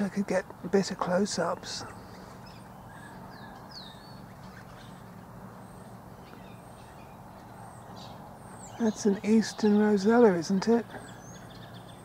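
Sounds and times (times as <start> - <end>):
low background hum: 0.0 - 12.0
distant bird whistles: 1.9 - 9.6.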